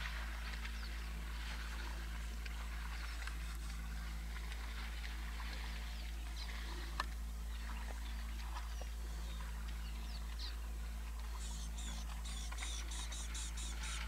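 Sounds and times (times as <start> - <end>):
steady low hum: 0.0 - 14.0
bird chirps: 11.4 - 14.0.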